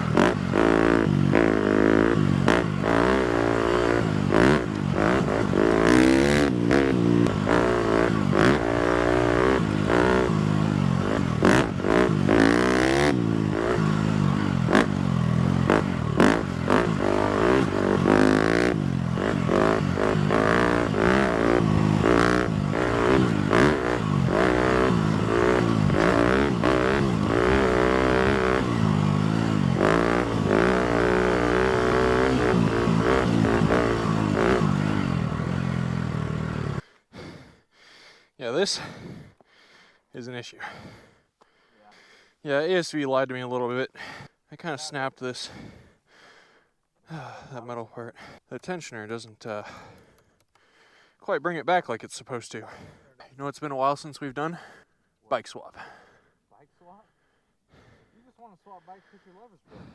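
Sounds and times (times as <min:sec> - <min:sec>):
motorbike engine revving: 0:00.0 - 0:36.9.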